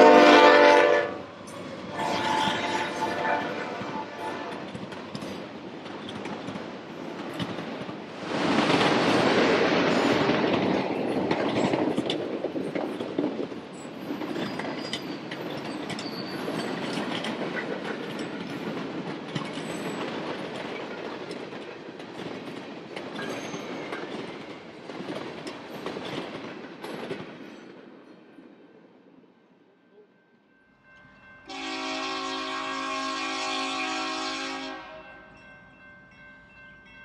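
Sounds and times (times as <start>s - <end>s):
train wheels clicking over rail joints: 4.1s - 27.9s.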